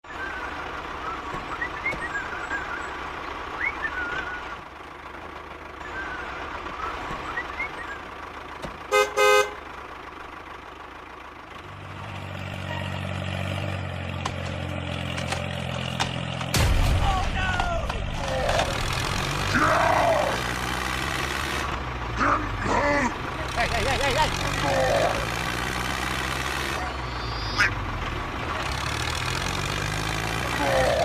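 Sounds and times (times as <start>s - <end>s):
vehicle engine humming: 0.0s - 31.0s
birds chirping: 0.1s - 4.6s, 26.7s - 28.0s
vehicle horn toots: 8.9s - 9.7s.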